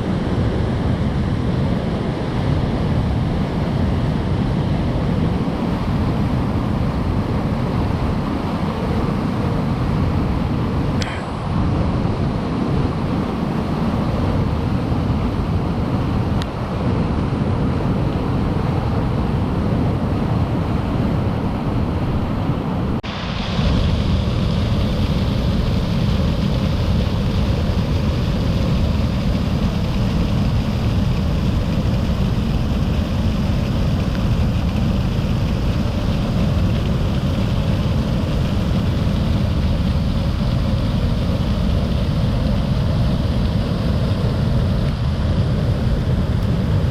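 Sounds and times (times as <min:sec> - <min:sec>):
river rushing: 0:00.0 - 0:46.9
waterfall rushing: 0:22.2 - 0:46.0.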